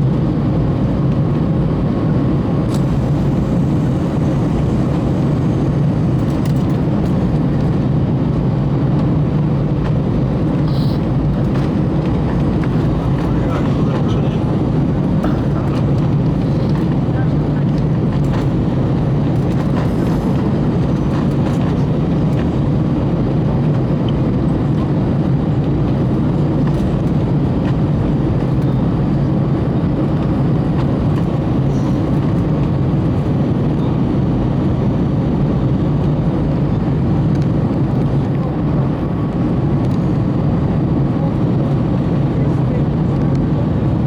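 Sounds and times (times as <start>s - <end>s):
jet engine drone: 0.0s - 44.0s
faint steady hums: 2.4s - 7.9s.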